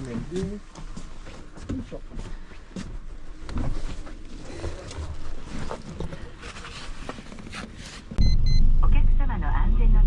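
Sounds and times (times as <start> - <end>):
bus low rumble: 8.2 - 10.0.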